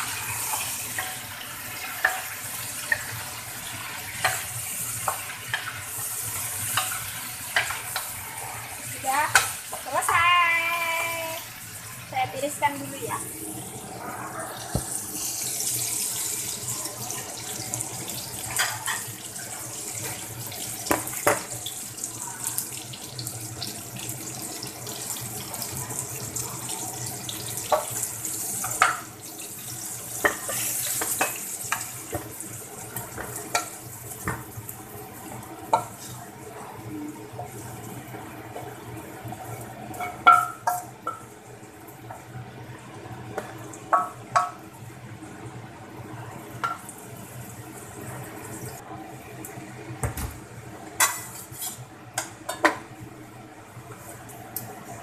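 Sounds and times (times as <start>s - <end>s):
food sizzling in hot oil: 0.0s - 45.1s
spatula scraping a wok: 51.0s - 51.8s.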